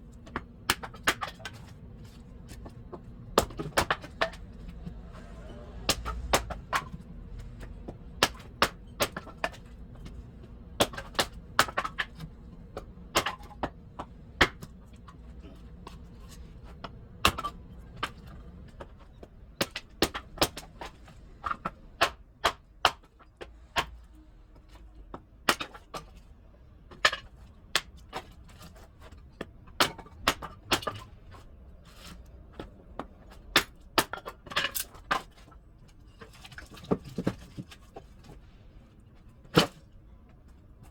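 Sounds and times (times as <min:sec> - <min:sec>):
wood chopping knocks and cracks: 0:05.9 - 0:07.0, 0:10.8 - 0:12.2, 0:13.1 - 0:13.7.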